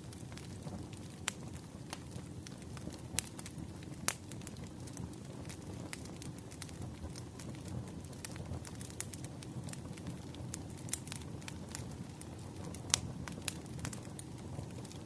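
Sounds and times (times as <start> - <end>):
burning firewood crackling: 0.0 - 15.0.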